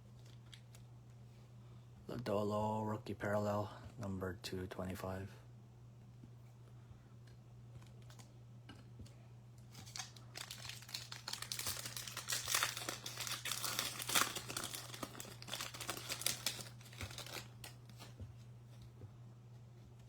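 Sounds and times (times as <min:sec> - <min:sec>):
low electrical hum: 0:00.0 - 0:20.0
wrapper tearing and crinkling: 0:09.7 - 0:18.1.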